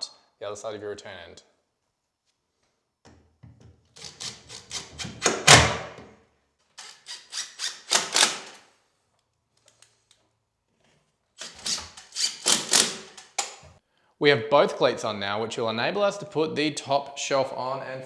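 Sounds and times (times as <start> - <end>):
power driver driving screws: 4.0 - 5.8, 6.8 - 8.6, 11.4 - 13.6.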